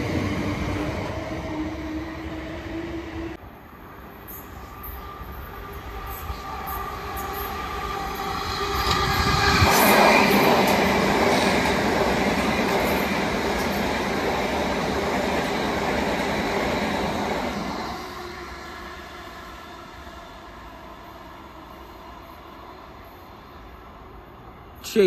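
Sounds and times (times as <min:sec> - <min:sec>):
train wheels on rails: 0:04.2 - 0:18.8.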